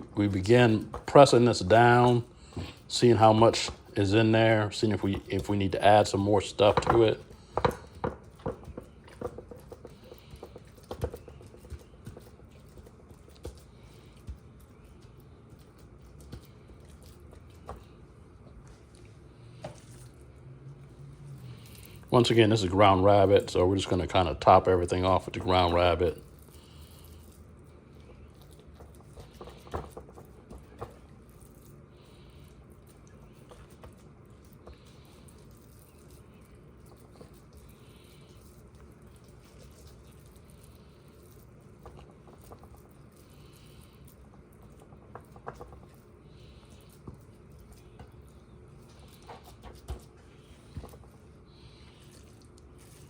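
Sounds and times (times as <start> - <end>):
ground meat patting into tin: 6.2 - 14.4, 28.7 - 31.0.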